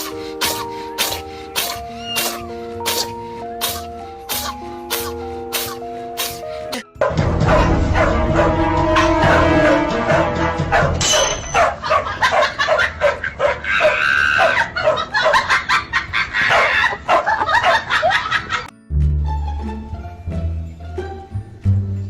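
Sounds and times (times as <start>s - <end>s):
music: 0.0s - 11.6s, 18.7s - 22.0s
dog barking and yipping: 7.0s - 9.2s, 10.7s - 15.6s, 16.4s - 18.1s.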